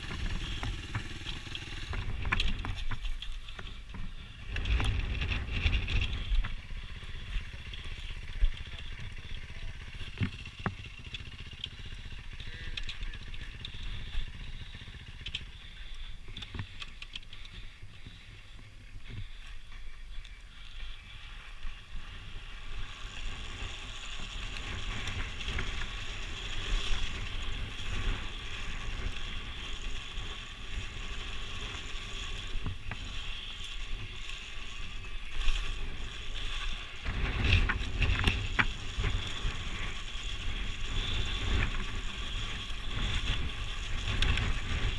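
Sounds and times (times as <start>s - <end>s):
muffled dirt bike engine: 0.0s - 44.9s.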